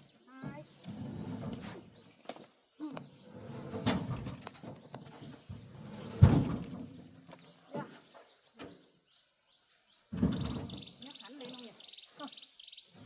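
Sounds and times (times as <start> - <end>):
wooden knocks and scraping: 0.4 - 2.4, 3.2 - 8.8.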